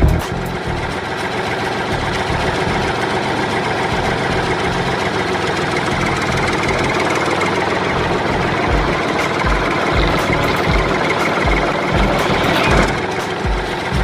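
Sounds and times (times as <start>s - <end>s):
tractor engine idling: 0.0s - 14.0s.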